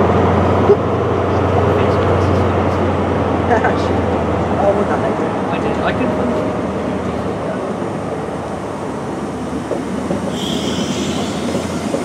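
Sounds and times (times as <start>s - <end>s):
train wheels rumbling on rail: 0.0s - 12.0s
wheel squeal: 10.3s - 12.0s.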